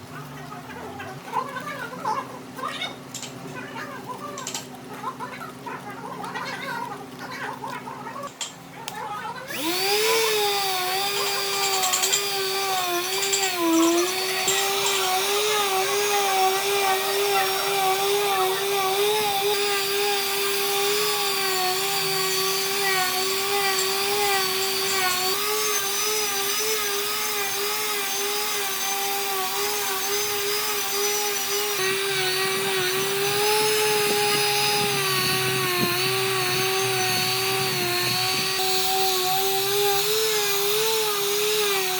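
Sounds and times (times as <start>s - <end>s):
electric power tool cutting wood: 9.5s - 41.9s.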